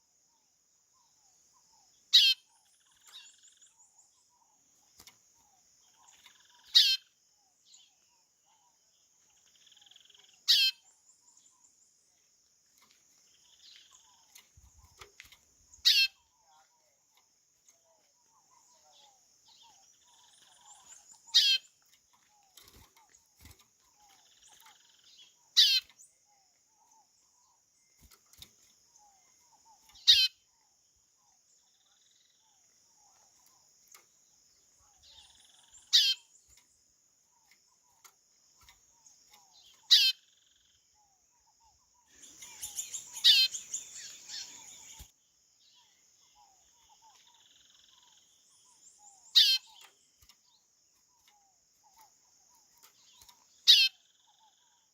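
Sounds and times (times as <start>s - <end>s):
high insect drone: 42.2s - 54.7s.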